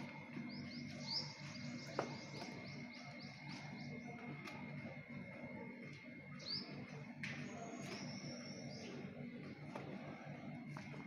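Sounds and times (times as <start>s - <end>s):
small bird chirping: 0.1s - 4.3s, 6.3s - 9.1s.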